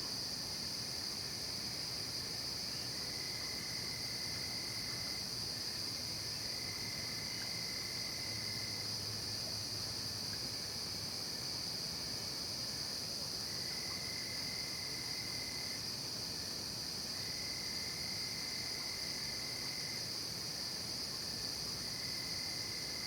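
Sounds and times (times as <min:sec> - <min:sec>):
lower insect trill: 0:00.0 - 0:23.0
insects trilling: 0:01.0 - 0:10.3.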